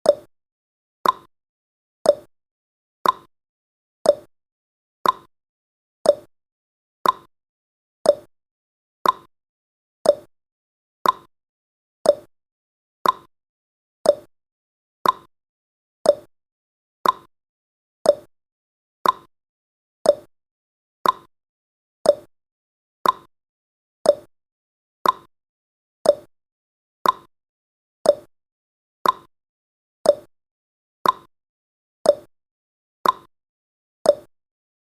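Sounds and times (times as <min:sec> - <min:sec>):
countdown timer ticking: 0:02.1 - 0:02.3, 0:04.1 - 0:04.3, 0:06.1 - 0:06.3, 0:08.1 - 0:08.3, 0:10.0 - 0:10.3, 0:11.0 - 0:11.3, 0:12.1 - 0:12.3, 0:13.0 - 0:13.3, 0:14.0 - 0:14.3, 0:15.0 - 0:15.3, 0:16.1 - 0:16.3, 0:18.0 - 0:18.3, 0:19.0 - 0:19.3, 0:20.0 - 0:20.3, 0:21.0 - 0:21.3, 0:22.0 - 0:22.3, 0:23.0 - 0:23.3, 0:24.1 - 0:24.3, 0:25.0 - 0:25.3, 0:26.0 - 0:26.3, 0:27.0 - 0:27.3, 0:28.0 - 0:28.3, 0:29.0 - 0:29.3, 0:30.1 - 0:30.3, 0:31.0 - 0:31.3, 0:32.1 - 0:32.3, 0:33.0 - 0:33.3, 0:34.1 - 0:34.3.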